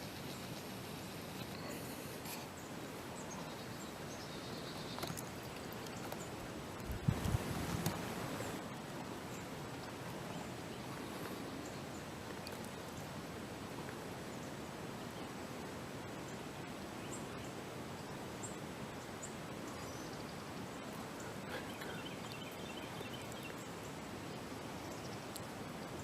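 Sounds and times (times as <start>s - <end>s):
woods background hiss: 0.0s - 26.0s
faint bird chirps: 16.2s - 25.5s.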